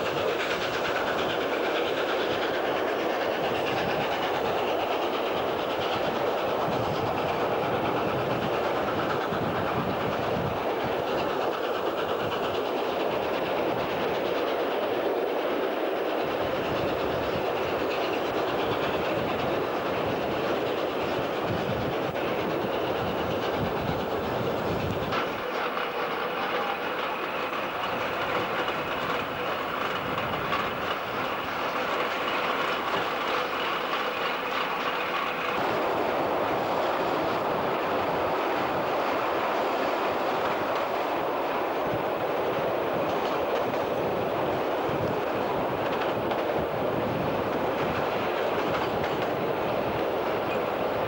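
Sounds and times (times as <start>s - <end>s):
train wheel and rail noise: 0.0s - 51.0s.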